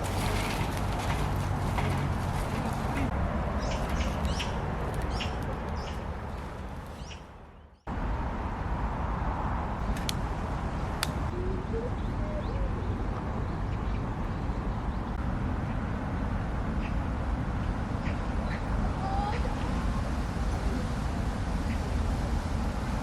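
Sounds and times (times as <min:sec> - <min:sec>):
sharp clicks: 0:09.9 - 0:10.2.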